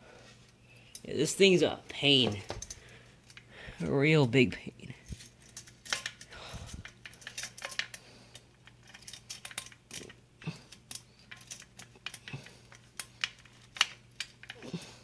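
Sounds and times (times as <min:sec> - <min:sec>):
steady low hum: 0:00.0 - 0:15.0
metallic clicks and rattles: 0:02.2 - 0:03.5, 0:05.0 - 0:14.6.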